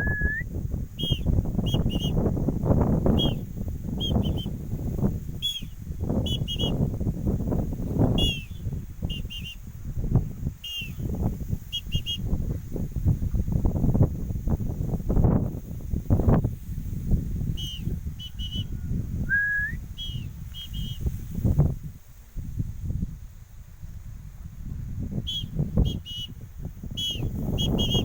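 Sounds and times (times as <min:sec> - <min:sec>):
small bird chirping: 0:08.1 - 0:09.6, 0:10.6 - 0:12.3, 0:17.5 - 0:18.9, 0:20.0 - 0:21.1, 0:27.0 - 0:28.0.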